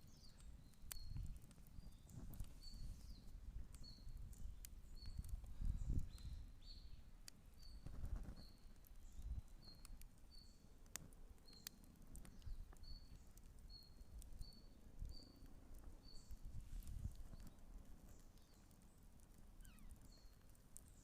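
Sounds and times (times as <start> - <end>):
campfire crackling and popping: 0.0 - 21.0
bird chirping: 19.6 - 21.0.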